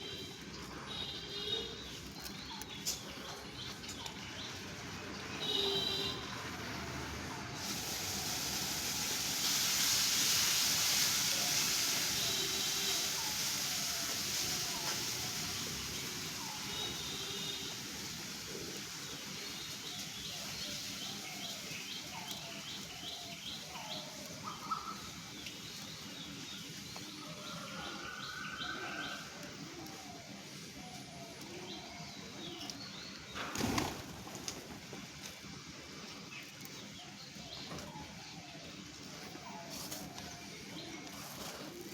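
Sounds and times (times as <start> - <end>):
birds chirping: 0.0 - 7.0
background hiss: 5.0 - 41.9.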